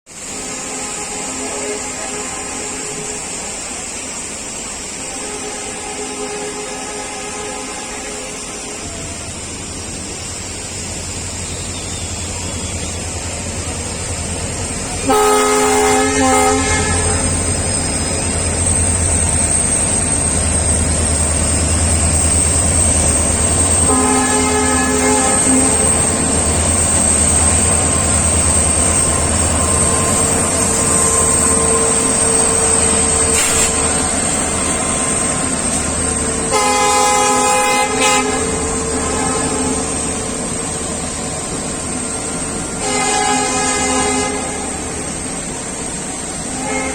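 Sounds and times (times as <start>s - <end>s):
train rumble: 0.1s - 46.9s
locomotive horn blasts: 0.5s - 3.1s, 5.1s - 8.4s, 15.0s - 17.5s, 23.9s - 26.3s, 33.3s - 33.9s, 36.5s - 40.0s, 42.8s - 45.0s, 46.5s - 46.9s.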